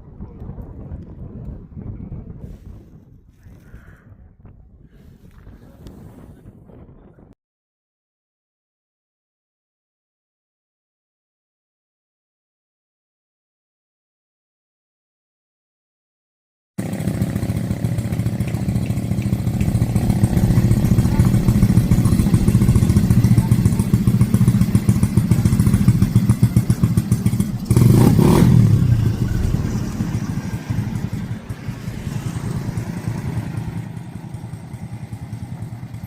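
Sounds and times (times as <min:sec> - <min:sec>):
wind buffeting microphone: 0:00.0 - 0:07.4, 0:18.6 - 0:35.8.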